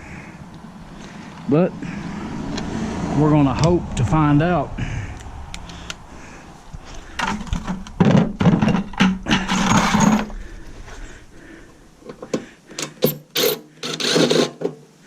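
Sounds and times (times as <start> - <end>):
small power tool motor bursts: 13.4 - 14.5.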